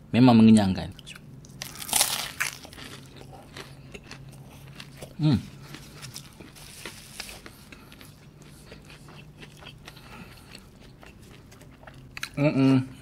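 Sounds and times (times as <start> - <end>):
paper tissue rustling: 5.9 - 7.4.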